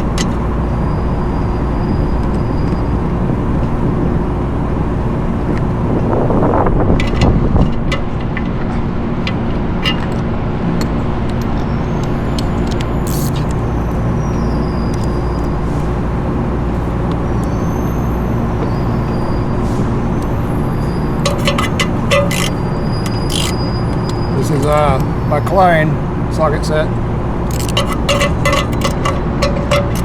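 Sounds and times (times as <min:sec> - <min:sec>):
hand tools clicking on metal: 0:00.0 - 0:00.4, 0:07.0 - 0:10.2, 0:12.4 - 0:13.6, 0:21.2 - 0:25.0, 0:27.5 - 0:30.0
low machinery drone: 0:00.0 - 0:30.0.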